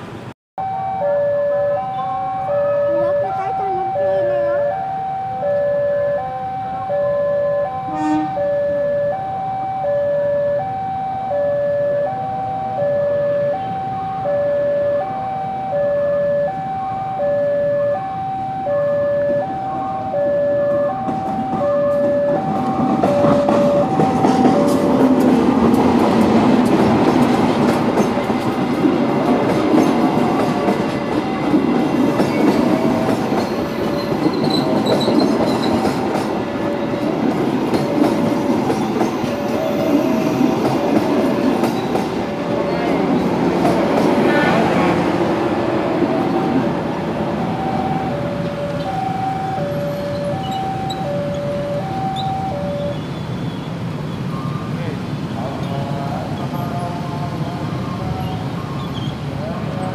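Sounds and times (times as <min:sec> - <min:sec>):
diesel locomotive engine: 0:00.0 - 0:59.9
level crossing two-tone alarm: 0:00.6 - 0:25.6, 0:46.0 - 0:53.1
wheels rattling over rails: 0:20.7 - 0:54.3.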